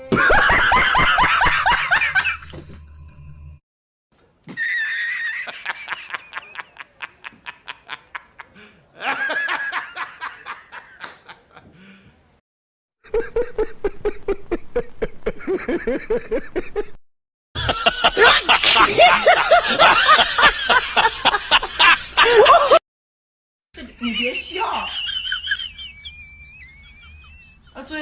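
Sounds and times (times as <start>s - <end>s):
high-pitched meme laugh: 0.0s - 2.6s, 4.5s - 8.3s, 17.6s - 22.8s, 24.2s - 27.8s
lower-pitched laugh: 0.0s - 2.7s, 4.5s - 11.8s, 13.1s - 17.0s, 17.6s - 22.8s, 24.7s - 27.8s.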